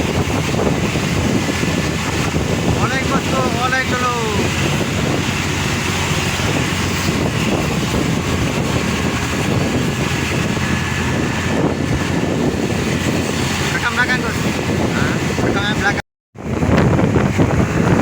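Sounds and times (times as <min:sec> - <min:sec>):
passing truck rumble: 0:00.0 - 0:15.4
wind buffeting microphone: 0:00.0 - 0:18.0.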